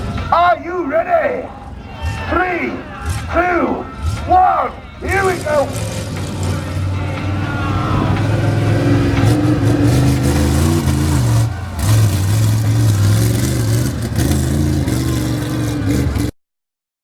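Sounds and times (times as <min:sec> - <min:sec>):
large engine revving: 0:05.2 - 0:16.4.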